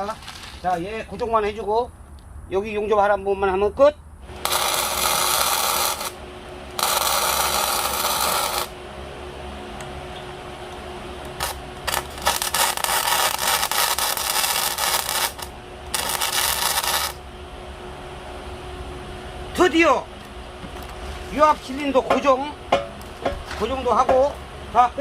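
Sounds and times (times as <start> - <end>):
steady hum: 0.0 - 25.0
welding arc crackling: 4.2 - 8.8, 10.7 - 17.3.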